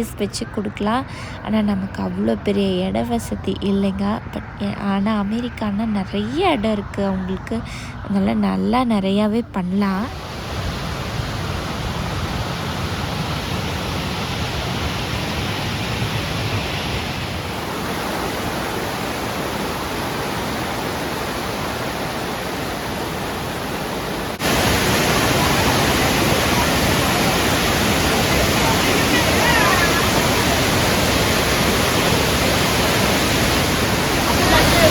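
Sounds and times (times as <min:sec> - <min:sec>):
waterfall rushing: 0:10.1 - 0:34.9.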